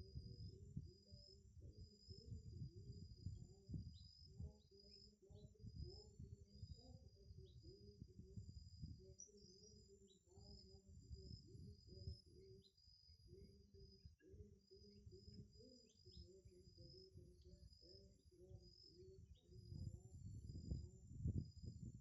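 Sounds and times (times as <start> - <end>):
low repeated bird notes: 8.8 - 20.0
wind rumble: 19.6 - 22.0.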